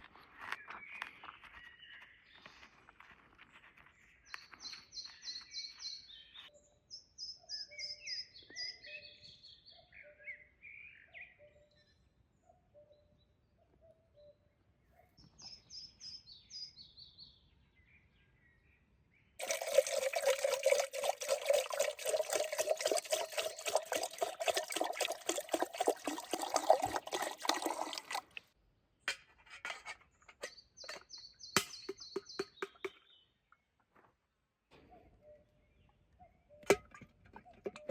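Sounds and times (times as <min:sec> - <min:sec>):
liquid pouring into container: 0:19.4 - 0:28.5, 0:36.7 - 0:37.9
birds chirping: 0:30.4 - 0:33.3.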